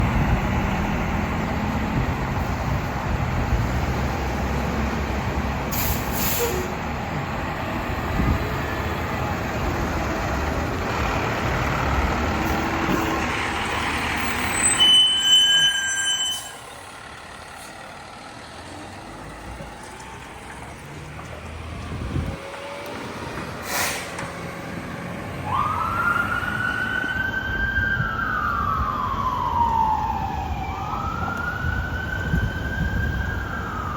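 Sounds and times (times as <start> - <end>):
short high steady tone: 14.6 - 16.8
fire engine diesel engine running: 16.3 - 25.9
siren wailing: 25.4 - 33.9.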